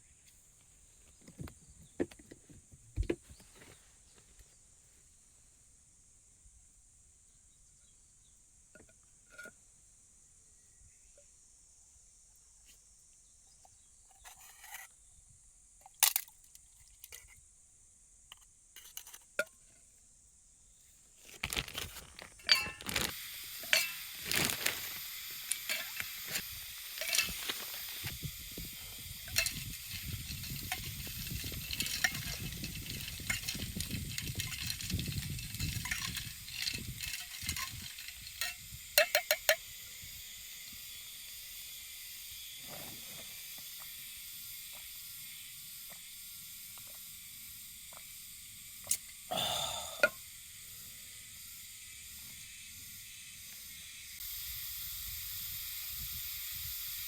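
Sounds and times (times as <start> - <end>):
metal pots and utensils clinking: 21.4 - 28.1, 29.0 - 39.6
hissing sizzle: 21.4 - 57.0.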